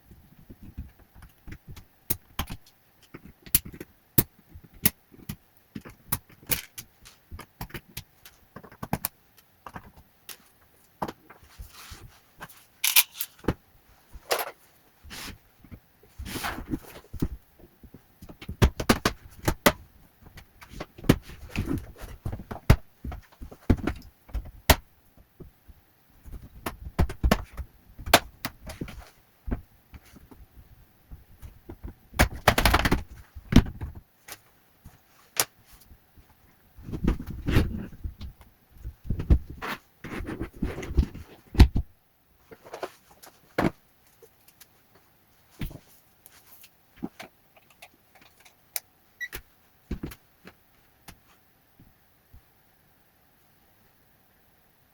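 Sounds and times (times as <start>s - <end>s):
small tools clicking and scraping: 12.8s - 13.5s.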